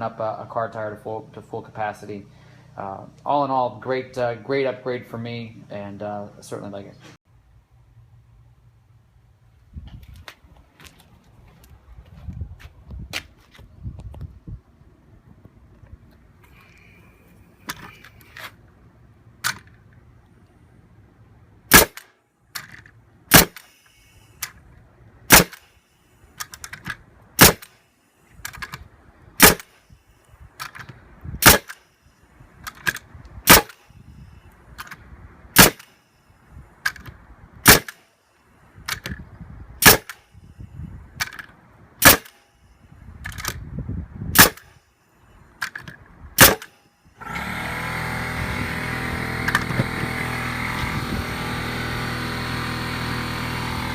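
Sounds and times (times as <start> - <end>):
sharp snapping cracks: 21.7 - 23.8, 29.4 - 29.7, 30.6 - 31.8, 39.8 - 40.2, 41.2 - 42.4, 44.4 - 44.8, 45.6 - 46.8.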